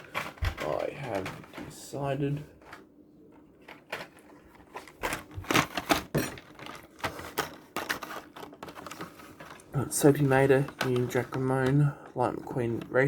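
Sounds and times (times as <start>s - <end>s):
plastic packaging crackling: 2.6s - 12.0s.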